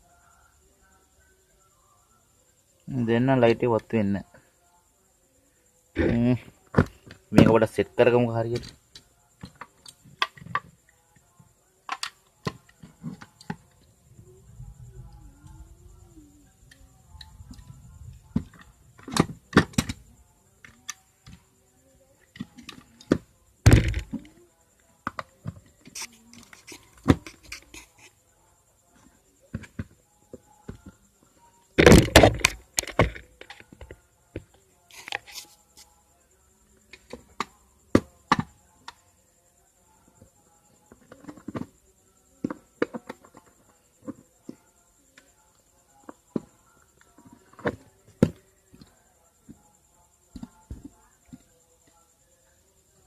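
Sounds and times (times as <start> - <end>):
loud thunks: 23.1 - 24.2, 31.8 - 34.0.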